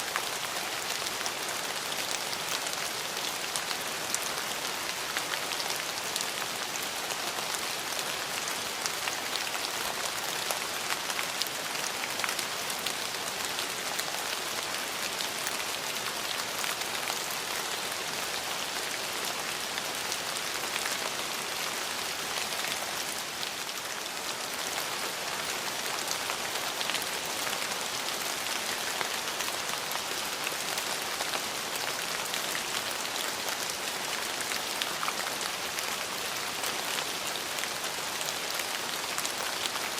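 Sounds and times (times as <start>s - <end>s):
rain on hard surfaces: 0.0s - 39.9s.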